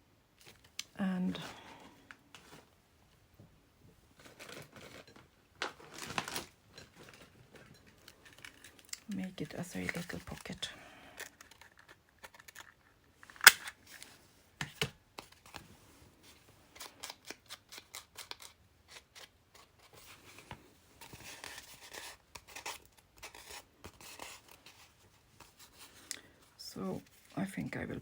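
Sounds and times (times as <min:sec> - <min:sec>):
scissors snipping paper: 0:16.8 - 0:19.9.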